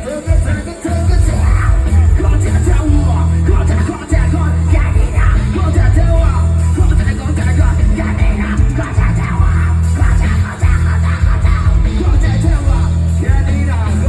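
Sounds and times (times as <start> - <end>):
loud amplified music with bass: 0.0 - 14.0
person singing: 0.0 - 14.0.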